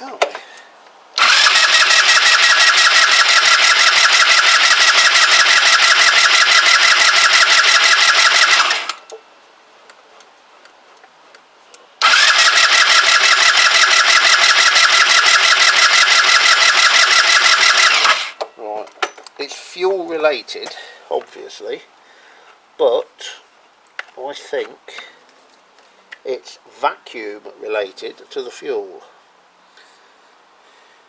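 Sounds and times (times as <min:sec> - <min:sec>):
scooter engine cranking: 0:01.2 - 0:09.1, 0:12.0 - 0:18.4.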